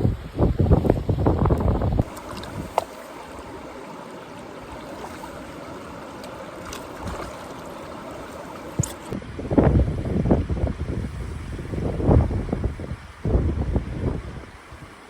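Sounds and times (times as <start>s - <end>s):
running water rushing: 0.0s - 9.5s
wind buffeting microphone: 0.0s - 15.0s.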